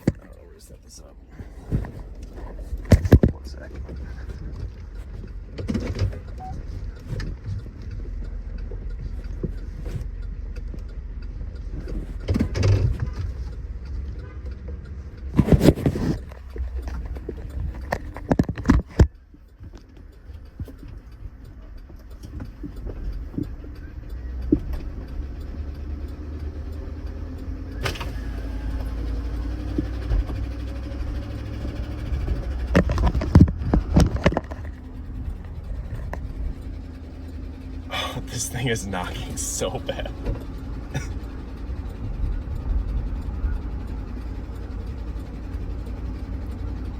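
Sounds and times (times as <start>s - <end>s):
engine rumbling with rod knock: 0.0s - 38.2s, 39.1s - 46.9s.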